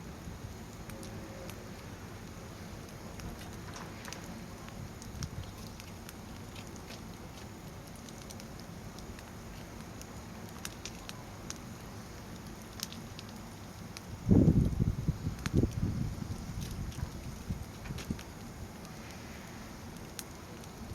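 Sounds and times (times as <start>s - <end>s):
fire burning: 0.0s - 20.9s
fire crackling and popping: 0.0s - 20.9s
wind buffeting microphone: 14.1s - 18.4s.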